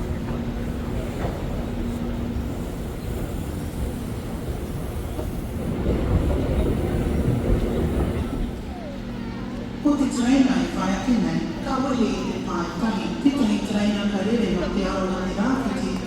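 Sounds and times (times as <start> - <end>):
electric train rumbling: 0.0 - 16.0.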